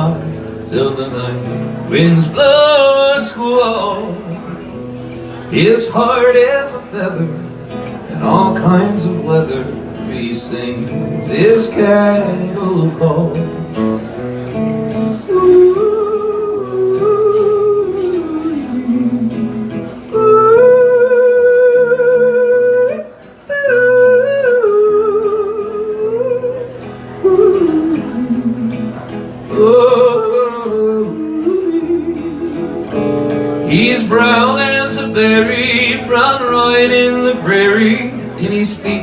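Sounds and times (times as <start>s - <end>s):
acoustic guitar: 0.0s - 39.0s
man yodeling: 15.3s - 28.8s.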